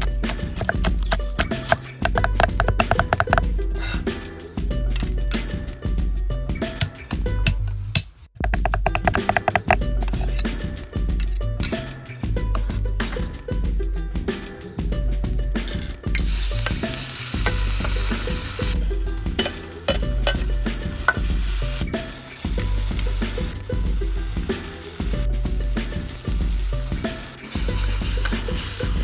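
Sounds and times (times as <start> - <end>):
background music with low beat: 0.0 - 29.0
garlic sizzling in hot oil: 16.2 - 29.0
metal spoon clinking on wok: 19.4 - 20.5.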